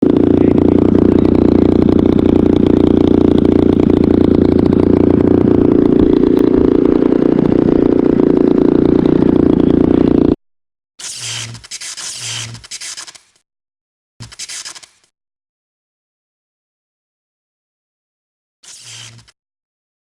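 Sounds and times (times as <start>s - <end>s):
model aircraft motor running: 0.0s - 10.4s, 11.0s - 13.3s, 18.6s - 19.4s.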